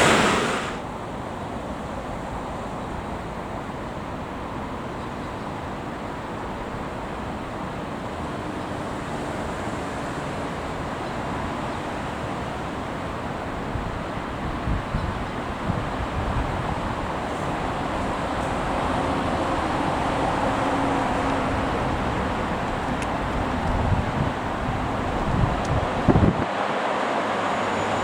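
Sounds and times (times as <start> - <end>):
wind gusting on microphone: 0.0 - 1.2, 10.4 - 28.0.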